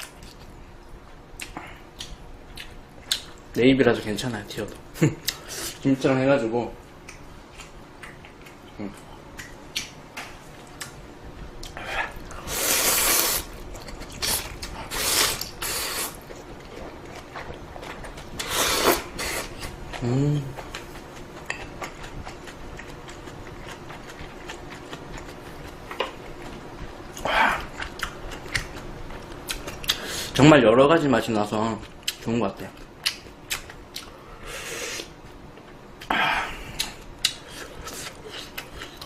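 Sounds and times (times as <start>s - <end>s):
chewing: 13.7s - 30.0s.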